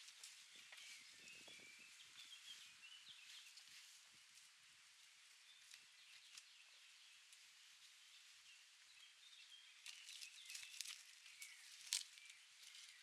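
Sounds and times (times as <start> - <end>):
faint bird chirps: 0.4 - 3.7.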